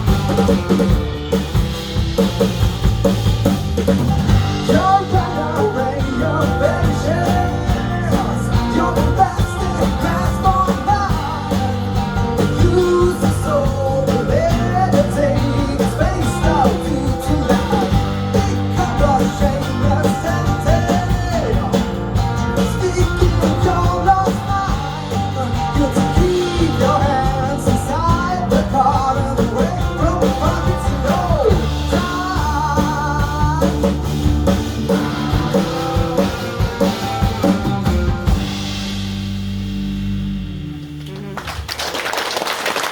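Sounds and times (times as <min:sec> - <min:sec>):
rock band instrumental: 0:00.0 - 0:41.9
guitar melody bending pitch: 0:39.7 - 0:41.6.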